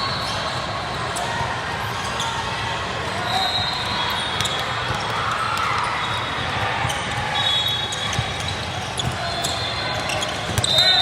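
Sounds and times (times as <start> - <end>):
gym hall din: 0.0 - 11.0
shoe squeaks: 5.9 - 11.0.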